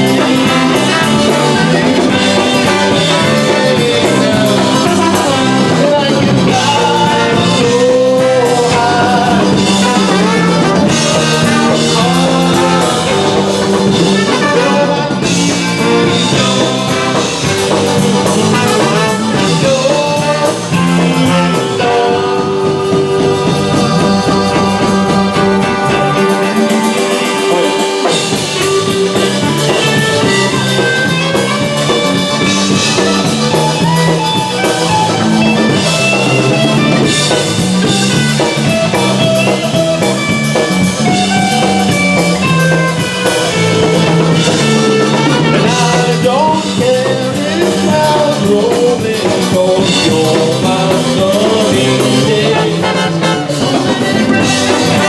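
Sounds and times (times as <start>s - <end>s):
singing: 0.0s - 28.3s, 44.4s - 55.0s
polka band playing: 0.0s - 55.0s.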